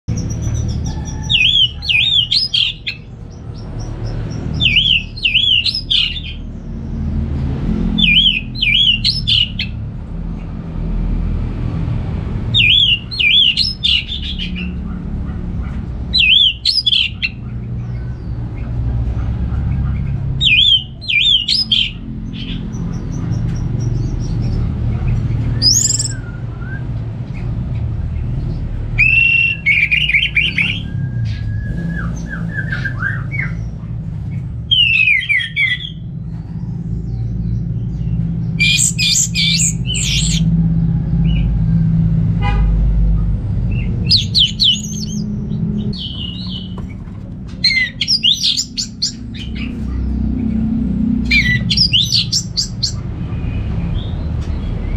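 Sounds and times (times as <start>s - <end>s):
thrush singing whistled notes: 0.1s - 6.5s, 7.9s - 9.8s, 12.5s - 14.6s, 16.1s - 17.4s, 20.4s - 22.5s, 25.5s - 27.0s, 28.9s - 33.7s, 34.7s - 36.1s, 37.9s - 40.5s, 43.7s - 46.8s, 47.6s - 50.0s, 51.2s - 54.2s
steady low rumble: 33.2s - 54.9s.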